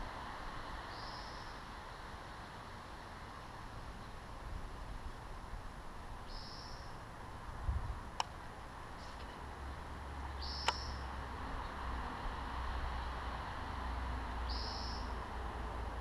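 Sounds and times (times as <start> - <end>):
outdoor hiss: 0.0 - 9.5
sharp clicks: 10.6 - 10.8.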